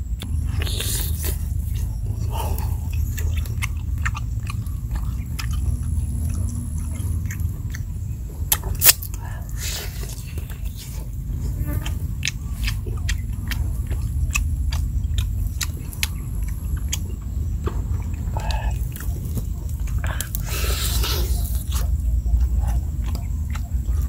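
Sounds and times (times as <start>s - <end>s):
steady low rumble: 0.0s - 24.0s
wet chewing and lip-smacking: 0.0s - 24.0s
loud bite: 8.5s - 17.1s.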